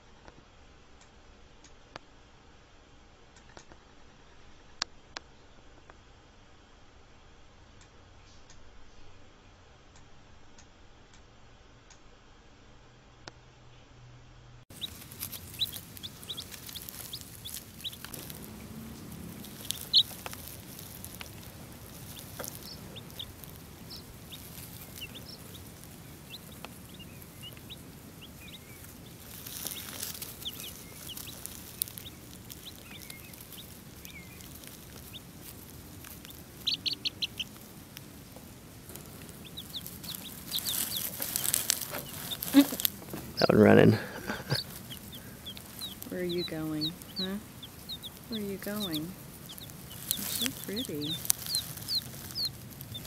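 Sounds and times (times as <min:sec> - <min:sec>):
chicks peeping: 0:14.7 - 0:53.0.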